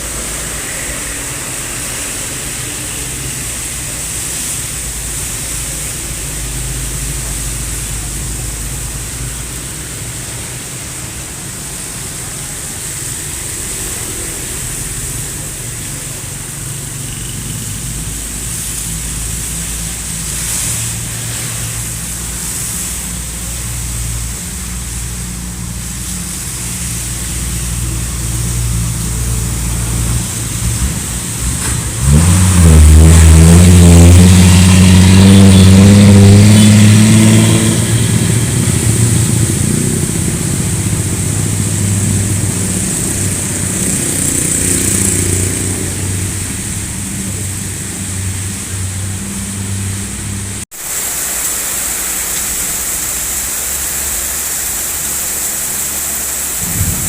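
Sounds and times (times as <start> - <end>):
constant hiss: 0.0 - 57.0.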